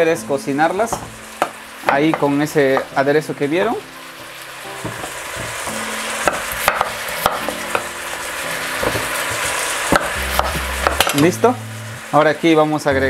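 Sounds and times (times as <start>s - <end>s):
vegetables sizzling in oil: 0.0s - 13.0s
knife tapping on chopping board: 6.3s - 7.8s.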